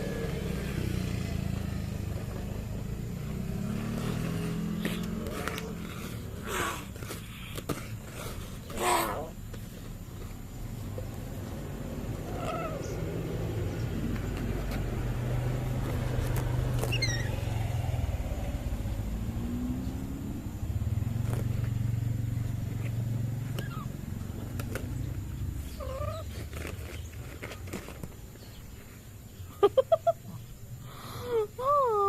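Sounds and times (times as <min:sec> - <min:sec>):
low engine-like rumble: 0:00.0 - 0:32.0
bird whistled calls: 0:16.9 - 0:17.4.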